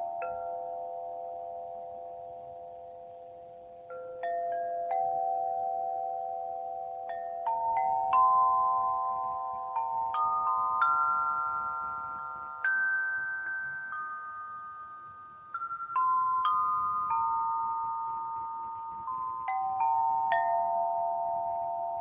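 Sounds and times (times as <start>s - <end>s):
metallophone notes ringing: 0.0s - 22.0s.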